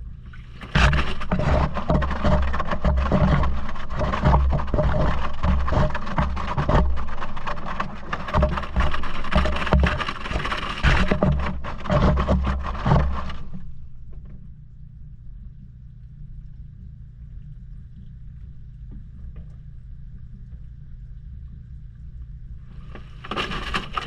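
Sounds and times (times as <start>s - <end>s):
washing machine hum: 0.0s - 14.5s, 16.4s - 24.0s
water and laundry sloshing: 0.2s - 14.1s, 22.6s - 24.0s
knocks and thuds in washer: 7.8s - 13.5s, 22.9s - 24.0s.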